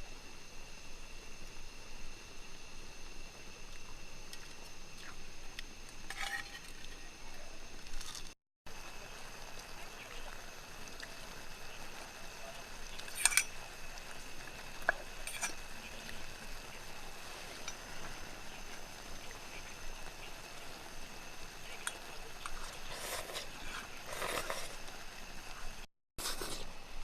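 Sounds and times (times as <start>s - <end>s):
steady faint hiss: 0.0s - 27.0s
utensils clinking on cookware: 13.1s - 13.6s
utensil scraping: 22.4s - 24.9s.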